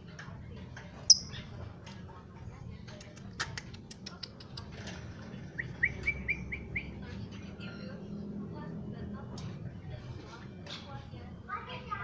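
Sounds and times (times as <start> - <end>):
bird clicks and ticks: 2.8 - 5.2.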